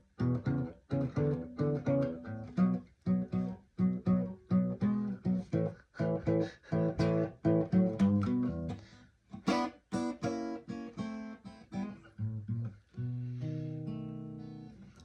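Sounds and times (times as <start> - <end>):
guitar playing choppy blues chords: 0.0 - 15.0.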